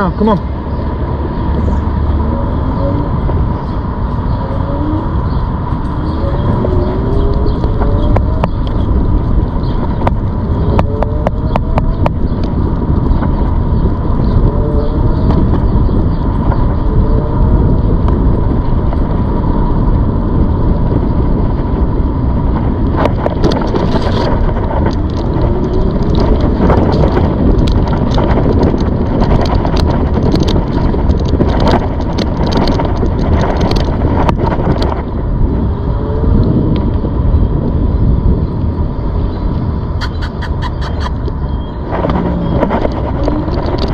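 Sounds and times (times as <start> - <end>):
electric bike rushing noise: 0.0 - 40.1, 41.0 - 43.9
clicks and rattles: 22.9 - 35.0, 40.8 - 43.9.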